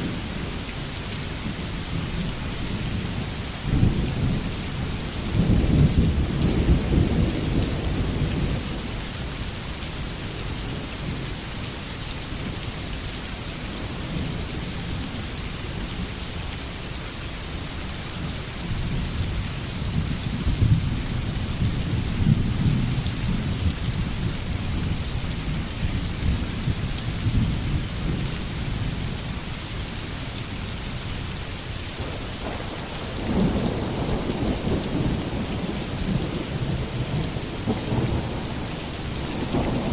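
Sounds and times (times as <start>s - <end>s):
heavy rain: 0.0s - 39.9s
rolling thunder: 32.0s - 39.9s.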